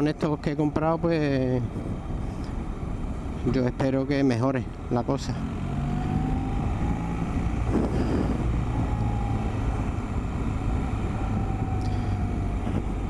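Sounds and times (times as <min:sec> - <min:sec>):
road noise: 0:00.0 - 0:13.0
motorcycle engine running: 0:04.7 - 0:13.0
wind noise: 0:05.8 - 0:13.0.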